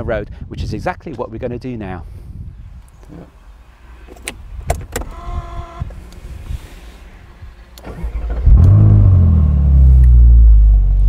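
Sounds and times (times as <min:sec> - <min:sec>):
car engine revving and idling: 0:06.8 - 0:11.0.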